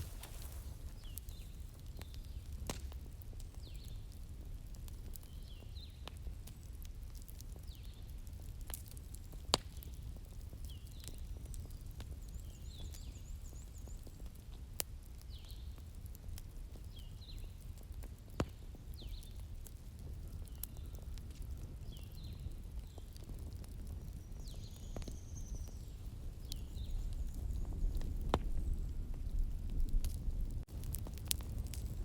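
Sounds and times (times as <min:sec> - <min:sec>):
small birds chirping: 0:00.0 - 0:02.6, 0:03.5 - 0:04.2, 0:09.7 - 0:14.4, 0:15.2 - 0:15.9, 0:16.7 - 0:17.7, 0:18.5 - 0:19.5, 0:20.2 - 0:23.2, 0:23.8 - 0:29.1
bonfire crackling and popping: 0:00.0 - 0:32.0
low rumble of flames: 0:00.0 - 0:32.0.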